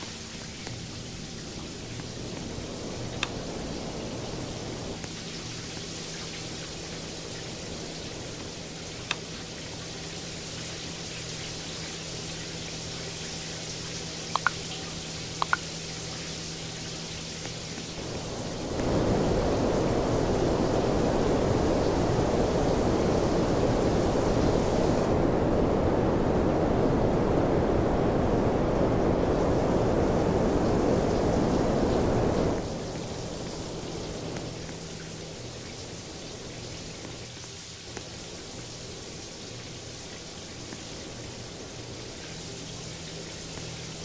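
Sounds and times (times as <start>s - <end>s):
fan blowing air: 0.0s - 44.0s
short clicks: 14.4s - 14.7s.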